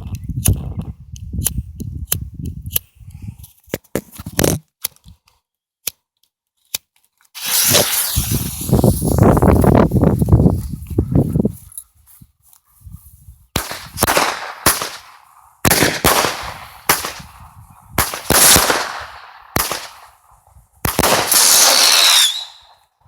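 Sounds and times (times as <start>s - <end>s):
fireworks reports with hiss: 7.4s - 9.8s, 18.0s - 20.1s, 20.9s - 22.7s
fireworks crackling hiss: 7.4s - 10.7s, 13.6s - 17.4s, 18.0s - 20.2s, 20.8s - 22.7s.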